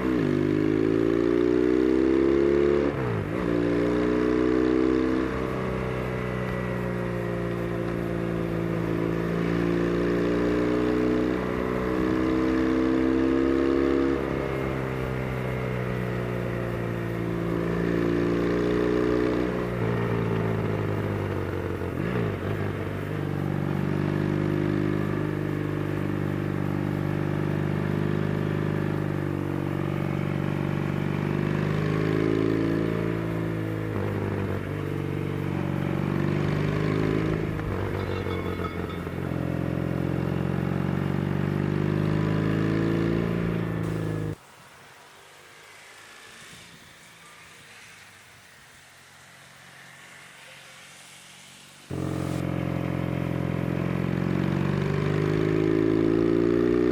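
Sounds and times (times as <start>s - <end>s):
motorcycle engine pulling under load: 36.0s - 44.4s
faint hiss: 43.8s - 52.4s.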